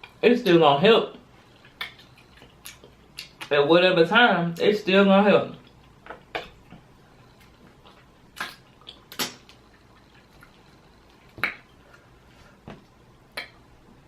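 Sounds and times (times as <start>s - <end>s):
wet eating smacks and squishes: 1.5s - 3.6s, 5.6s - 11.8s.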